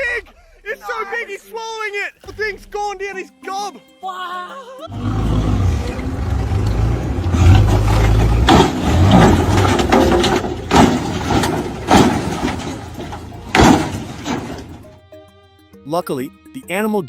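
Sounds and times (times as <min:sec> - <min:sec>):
heavy thumps: 0:05.7 - 0:14.9.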